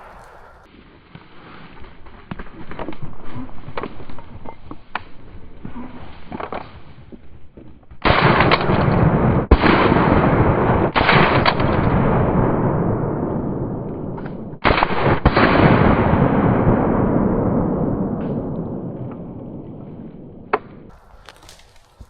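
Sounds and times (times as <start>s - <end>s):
dry vegetation crackling and rustling: 0.0s - 5.6s, 20.9s - 22.0s.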